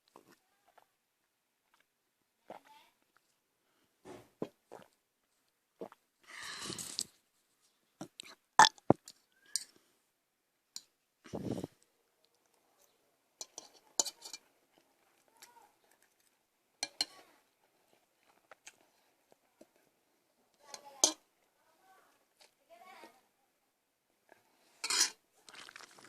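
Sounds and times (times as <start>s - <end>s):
low burp: 8.6s - 8.8s.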